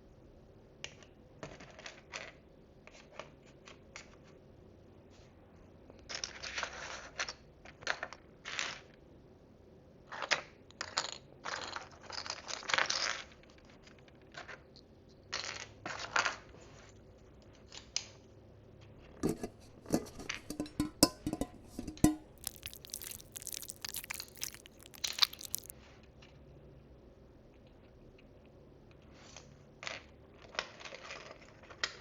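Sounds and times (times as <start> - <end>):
plastic wrapping crinkling: 19.8 - 25.7
plastic pieces rustling: 21.8 - 25.7.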